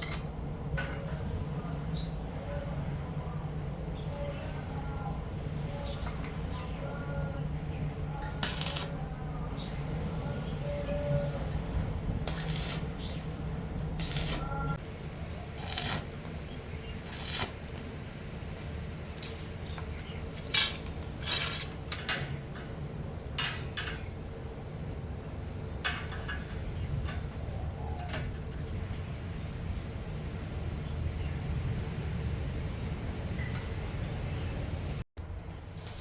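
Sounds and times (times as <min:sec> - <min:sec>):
low steady hum: 0:00.0 - 0:36.0
metallic clinks of tools: 0:19.2 - 0:22.4.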